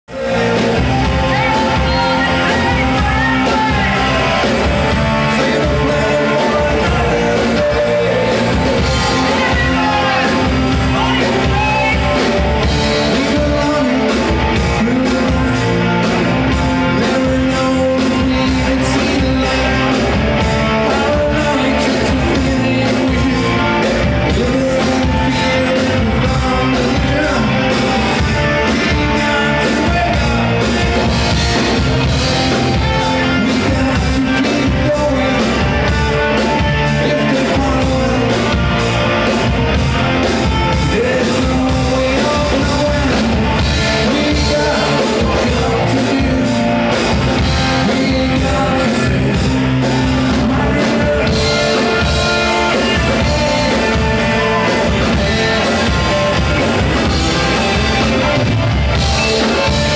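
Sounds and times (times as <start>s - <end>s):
electric guitars: 0.0s - 59.9s
person singing: 0.0s - 59.9s
drum beat: 0.3s - 15.5s.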